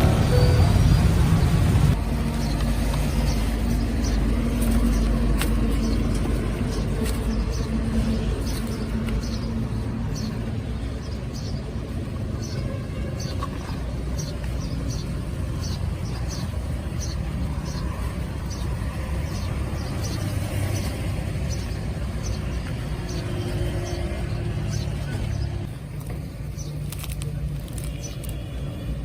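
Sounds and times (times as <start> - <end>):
music-like sound: 0.0 - 2.0
low rumble of road traffic: 0.0 - 29.0.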